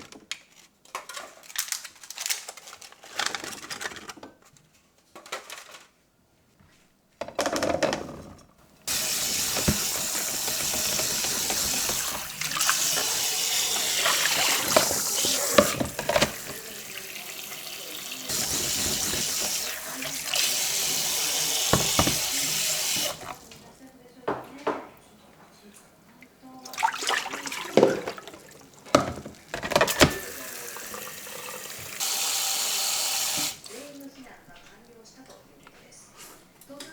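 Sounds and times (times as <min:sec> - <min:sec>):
handling sounds: 0:00.0 - 0:06.0, 0:06.6 - 0:23.9, 0:27.6 - 0:30.4
objects knocking and clattering: 0:00.0 - 0:06.0, 0:07.2 - 0:17.4, 0:18.2 - 0:23.7, 0:27.0 - 0:30.4
water running into sink: 0:08.8 - 0:23.7, 0:26.5 - 0:34.1.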